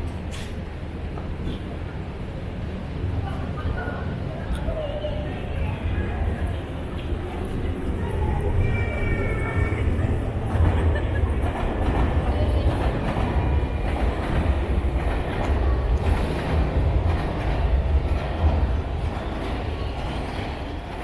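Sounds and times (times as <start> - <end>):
train rumbling past: 0.0 - 21.0
rail clatter: 6.2 - 21.0.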